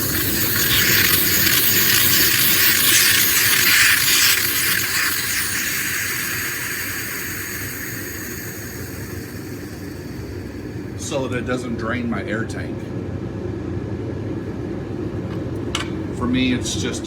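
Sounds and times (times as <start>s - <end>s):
compressed air hissing: 0.0s - 11.1s.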